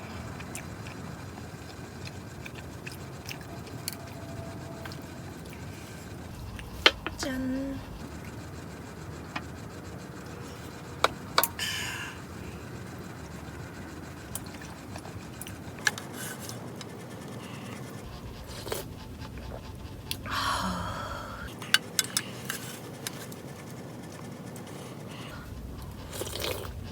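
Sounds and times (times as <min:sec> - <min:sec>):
breathy exhales: 0:11.6 - 0:12.6, 0:18.8 - 0:21.5.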